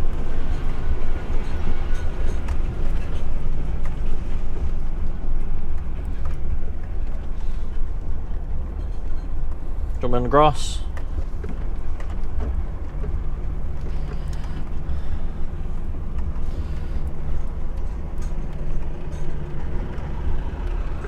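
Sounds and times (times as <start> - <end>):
diesel truck engine rumbling: 0.0 - 21.0
light clicks and rattles: 10.8 - 20.9.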